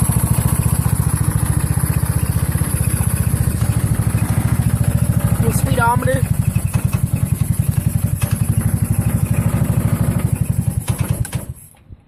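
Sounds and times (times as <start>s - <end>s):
go-kart engine sputtering: 0.0s - 11.8s.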